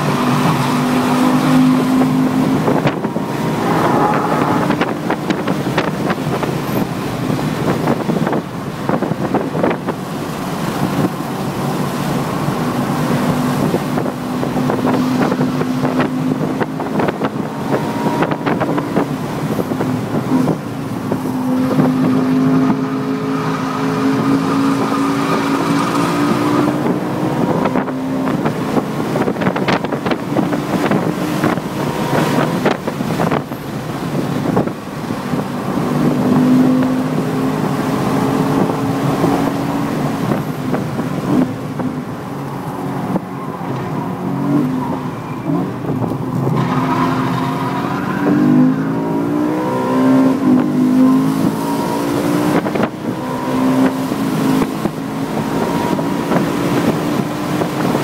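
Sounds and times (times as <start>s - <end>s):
racing car engine: 0.0s - 58.0s.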